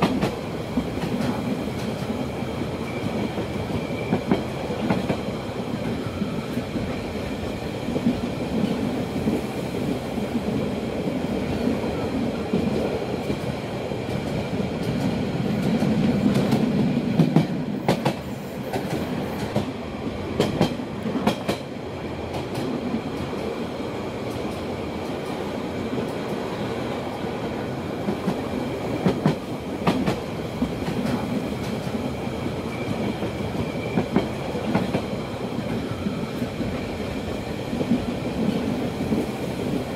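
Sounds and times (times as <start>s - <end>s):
train wheels rumbling on rails: 0.0s - 39.9s
rail joint clacks: 12.5s - 19.8s, 20.4s - 21.7s, 28.0s - 32.0s.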